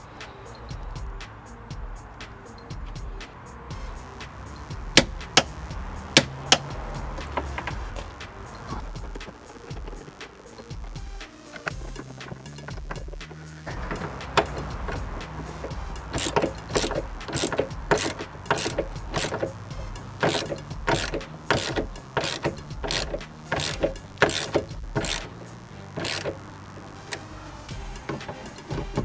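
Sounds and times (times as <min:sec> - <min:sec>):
clicks and knocks on car door fittings: 0:05.0 - 0:05.5, 0:06.2 - 0:08.1, 0:11.6 - 0:29.0.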